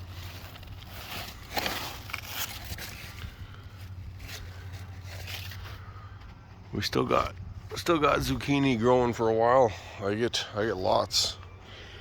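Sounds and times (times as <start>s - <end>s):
rustling and scraping leaves: 0.0s - 6.3s.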